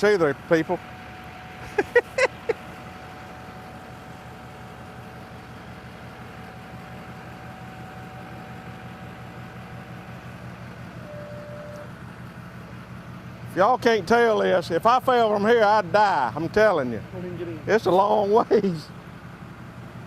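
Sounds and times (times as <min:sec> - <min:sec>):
diesel engine idling: 0:00.0 - 0:20.0
thin steady whine: 0:01.6 - 0:12.8.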